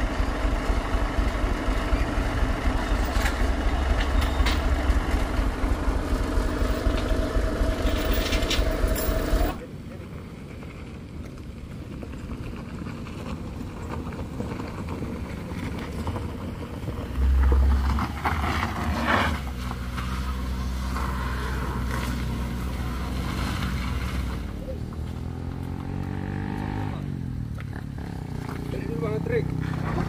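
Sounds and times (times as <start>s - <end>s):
heavy low rumble: 0.0s - 9.9s, 16.0s - 20.2s
car engine climbing: 0.0s - 30.0s.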